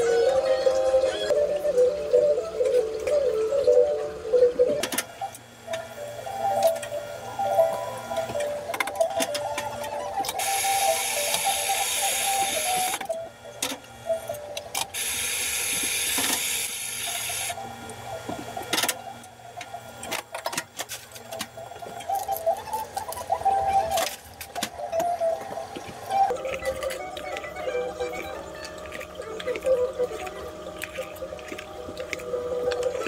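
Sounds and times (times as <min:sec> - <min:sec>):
background music: 0:00.0 - 0:05.0
espresso machine hissing: 0:10.4 - 0:13.0, 0:15.0 - 0:17.6.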